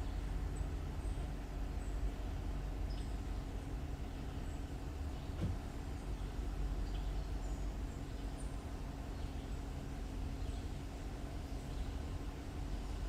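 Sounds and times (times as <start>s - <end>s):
car engine and road rumble: 0.0s - 13.0s
soft knock: 5.4s - 5.6s.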